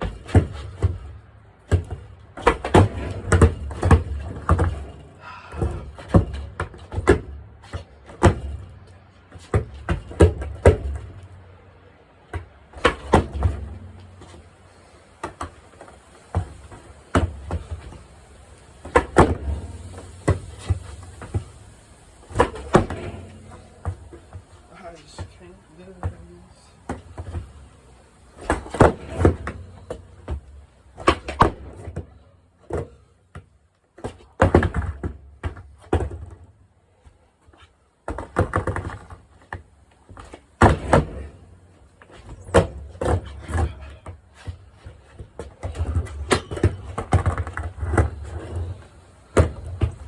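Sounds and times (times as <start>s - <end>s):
skateboard wheels rolling: 0.0s - 33.2s, 34.0s - 50.0s
skateboard clacks and knocks: 1.7s - 8.6s, 12.3s - 14.4s, 18.8s - 21.6s, 22.2s - 25.3s, 28.4s - 33.1s, 34.0s - 36.5s, 38.0s - 50.0s.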